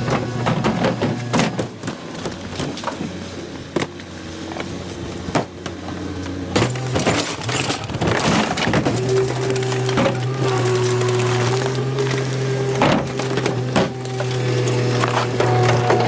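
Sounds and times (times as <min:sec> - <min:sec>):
garbage truck humming: 0:00.0 - 0:16.0
rattling and clanking: 0:12.8 - 0:16.0.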